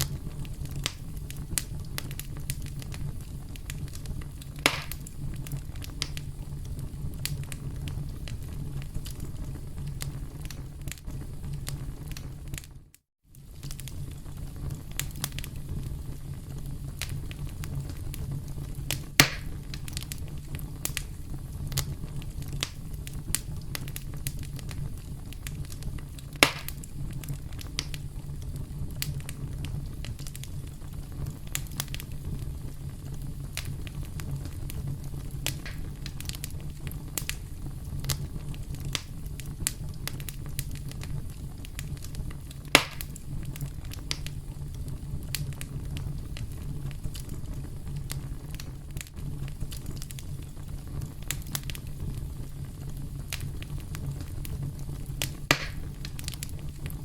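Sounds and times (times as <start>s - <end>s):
low rumble of flames: 0.0s - 57.0s
wood popping and snapping: 4.6s - 5.0s, 19.2s - 19.6s, 26.4s - 26.8s, 35.4s - 36.4s, 42.7s - 43.1s, 55.2s - 56.5s.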